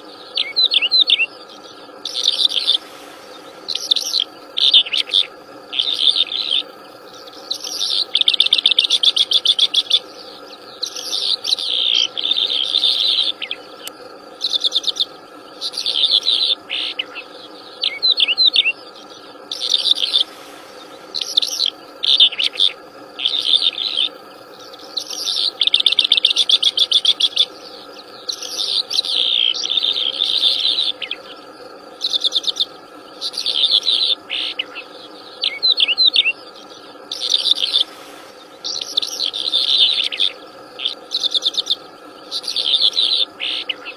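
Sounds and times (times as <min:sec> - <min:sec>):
faint steady drone: 0:00.0 - 0:43.9
songbird singing trills: 0:00.0 - 0:43.9.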